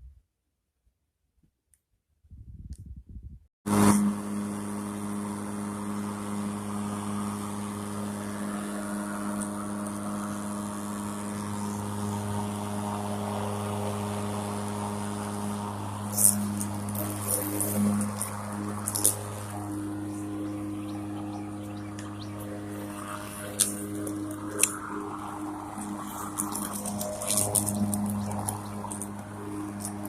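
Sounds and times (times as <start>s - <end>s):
electric lawn mower whirring: 3.7s - 30.0s
handling noise: 16.1s - 30.0s.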